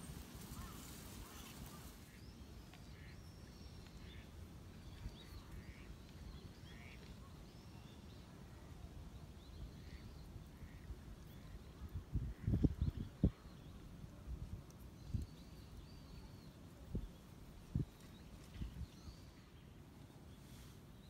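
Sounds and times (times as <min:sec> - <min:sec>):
faint birds calling: 0:00.0 - 0:14.0.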